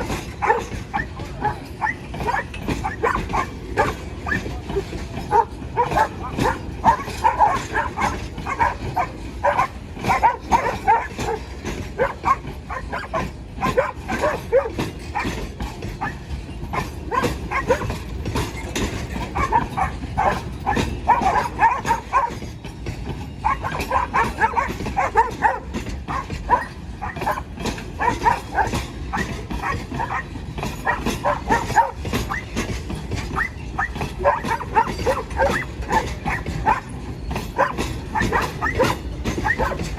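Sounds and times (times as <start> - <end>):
dogs barking and yelping: 0.0 - 39.9.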